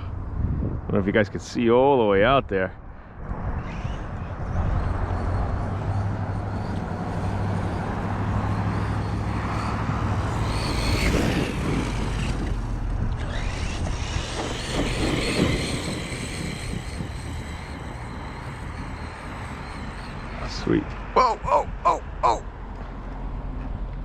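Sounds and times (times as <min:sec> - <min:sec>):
electric motor whining: 0:03.6 - 0:20.4.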